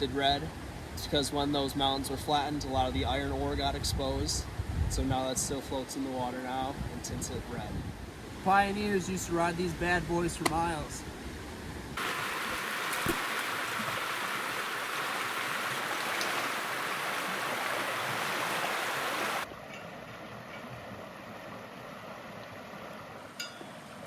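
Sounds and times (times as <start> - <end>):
river rapids rushing: 12.0 - 19.5.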